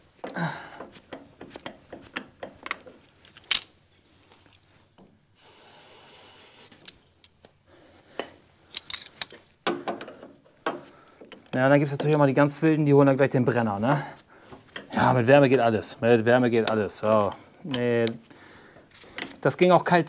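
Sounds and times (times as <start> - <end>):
metal parts clinking and scraping: 2.1 - 3.8, 8.7 - 9.5
steady hiss: 5.3 - 7.0.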